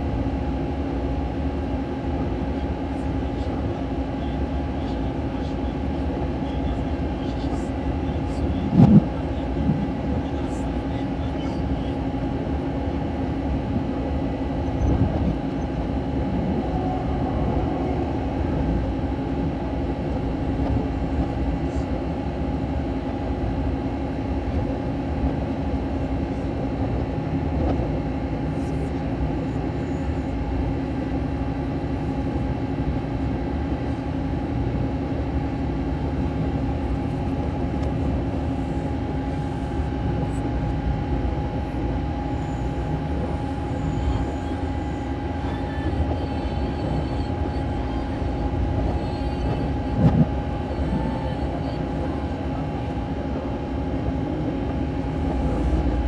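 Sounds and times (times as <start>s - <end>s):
train rumbling on track: 0.0s - 56.0s.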